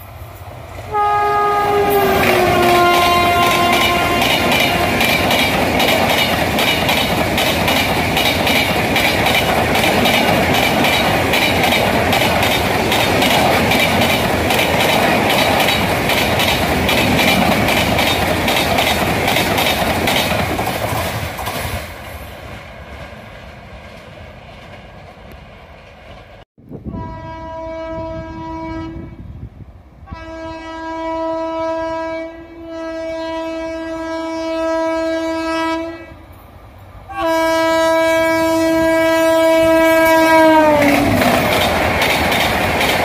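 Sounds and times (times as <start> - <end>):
train coaches passing at speed: 0.0 - 43.0
wheels clickety-clack over rail joints: 1.9 - 26.4, 40.1 - 43.0.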